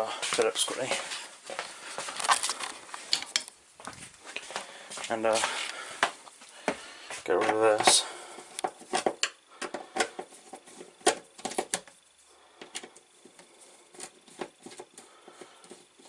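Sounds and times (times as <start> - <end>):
hard objects clicking and knocking: 2.1 - 3.6, 6.0 - 16.0.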